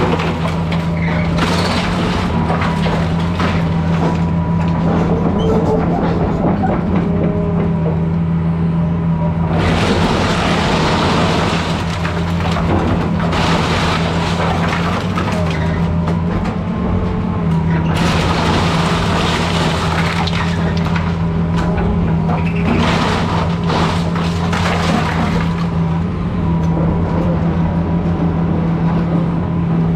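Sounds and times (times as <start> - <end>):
wood framing crunching and crashing: 0.0 - 5.9, 9.4 - 26.4
excavator diesel engine running: 0.0 - 29.9.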